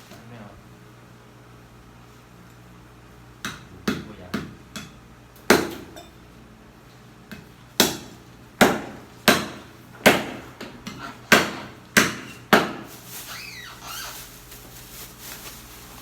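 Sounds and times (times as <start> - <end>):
cleaver chopping meat on block: 3.4 - 6.0, 7.3 - 12.9.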